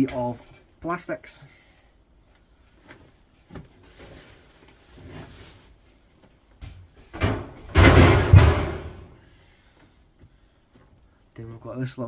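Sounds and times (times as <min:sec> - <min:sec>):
faint rustling: 0:02.2 - 0:07.1.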